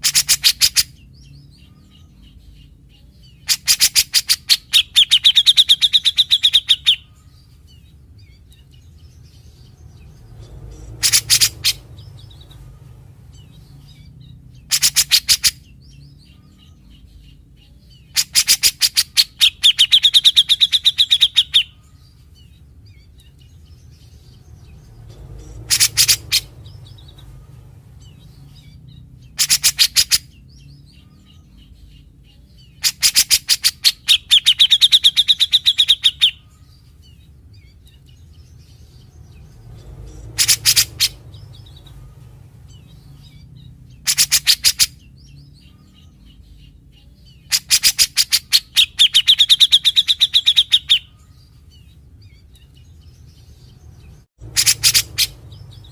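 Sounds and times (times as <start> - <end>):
bird giving rattling clicking calls: 10.7 - 11.8, 14.7 - 15.6, 25.4 - 27.2, 29.4 - 30.3, 40.1 - 41.9, 44.0 - 45.0, 54.4 - 55.4.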